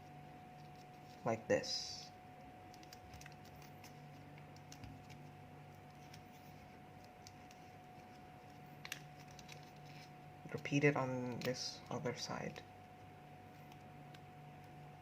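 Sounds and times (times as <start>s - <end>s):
paper rustling and creasing: 5.8s - 10.7s.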